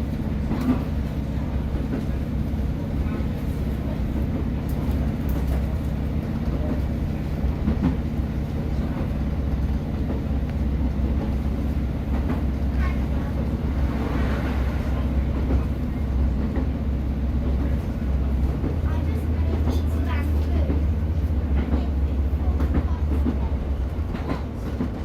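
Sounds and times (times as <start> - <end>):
diesel train engine hum: 0.0 - 25.0
rail noise: 0.0 - 25.0.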